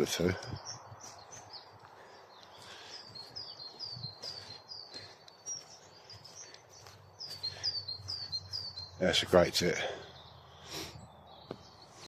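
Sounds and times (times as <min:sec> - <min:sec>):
songbird singing high notes: 0:03.0 - 0:12.0.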